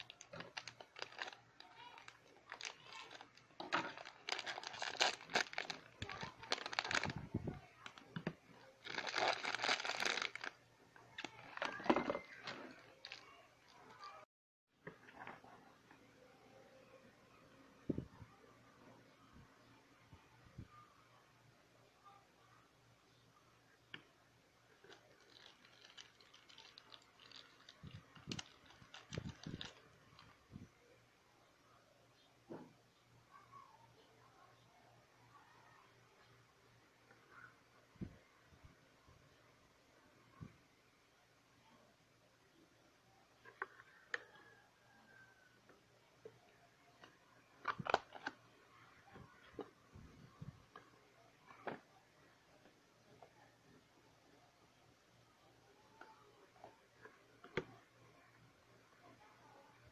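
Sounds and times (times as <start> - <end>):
packaging crinkling and tearing: 0.0 - 10.6, 11.2 - 13.8, 24.8 - 30.4, 47.6 - 48.4.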